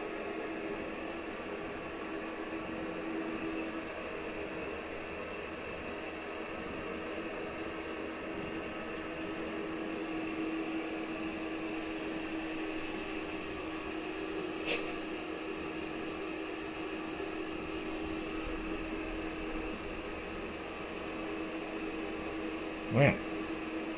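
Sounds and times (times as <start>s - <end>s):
room hum and hiss: 0.0s - 23.9s.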